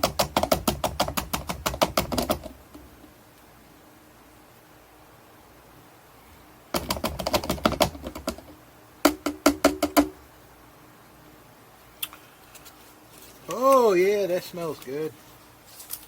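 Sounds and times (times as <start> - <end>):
sharp knocks against a ringing can: 9.0 - 10.2.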